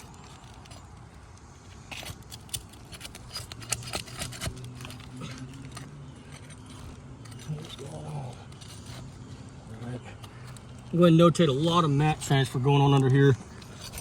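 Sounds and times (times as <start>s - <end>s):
shingles being pried loose: 0.0s - 9.2s, 12.9s - 14.0s.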